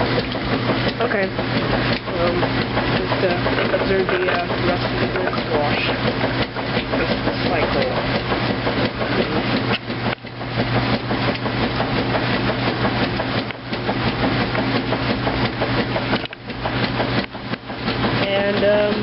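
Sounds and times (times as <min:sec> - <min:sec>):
washing machine churning: 0:00.0 - 0:19.0
washing machine motor hum: 0:00.0 - 0:19.0.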